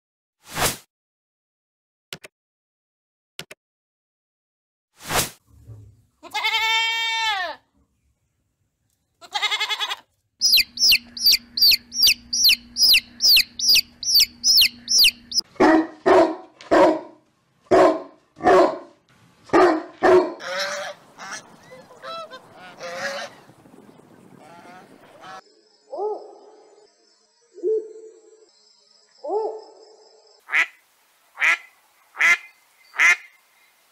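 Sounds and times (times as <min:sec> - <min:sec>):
goat bleating: 0:06.2 - 0:07.6, 0:09.2 - 0:10.1
chicks peeping: 0:10.4 - 0:15.4, 0:20.4 - 0:25.4
short low bird calls: 0:10.4 - 0:15.4.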